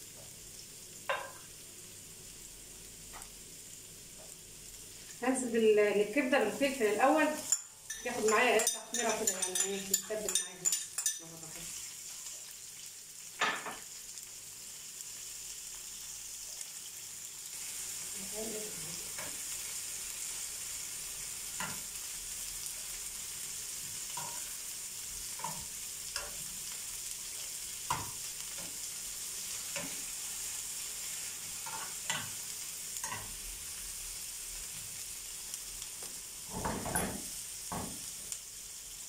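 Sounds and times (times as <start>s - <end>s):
vegetables sizzling in oil: 0.0s - 39.0s
spoon scraping and tapping pan: 1.1s - 1.5s, 7.4s - 11.3s, 21.6s - 21.9s, 24.1s - 24.6s, 25.3s - 26.5s, 27.9s - 28.8s, 29.6s - 30.0s, 31.6s - 32.4s, 33.0s - 33.3s.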